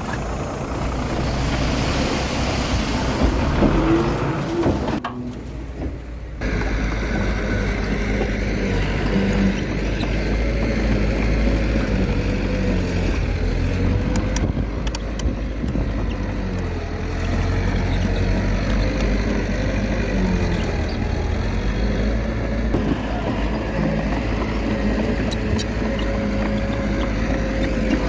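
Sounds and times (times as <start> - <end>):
bulldozer diesel engine whining: 0.0 - 28.0.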